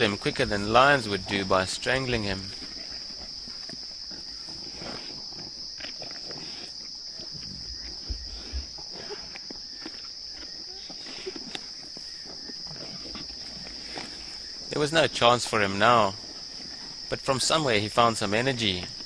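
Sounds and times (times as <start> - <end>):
crickets chirping: 0.0 - 19.0
hyenas tearing and crunching: 2.4 - 14.7.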